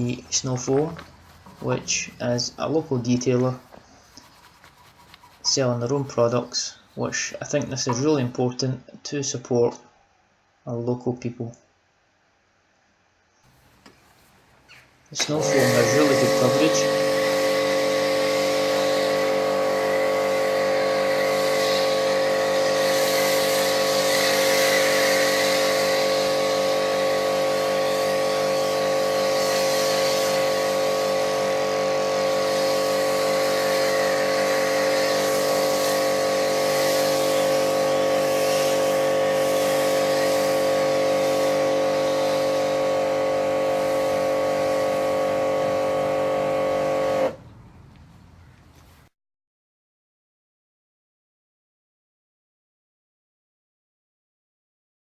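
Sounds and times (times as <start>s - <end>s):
pressure washer motor hum: 0.0s - 7.3s, 15.2s - 47.4s
spray hissing: 0.0s - 7.4s, 15.2s - 47.3s.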